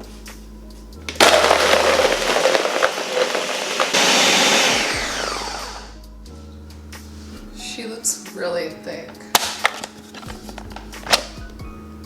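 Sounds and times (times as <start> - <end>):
blender grinding ice: 1.1 - 6.0.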